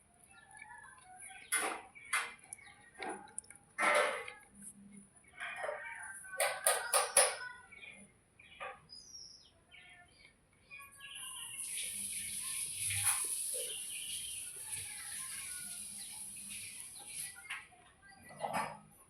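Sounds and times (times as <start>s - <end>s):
bird chirps: 6.6s - 18.4s.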